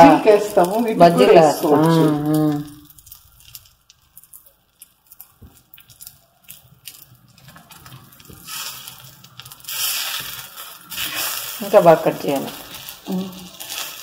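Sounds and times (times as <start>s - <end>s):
batter crackling on hot pan: 0.0s - 14.0s
hissing on pan: 0.0s - 14.0s
metal spatula scraping pan: 8.5s - 14.0s.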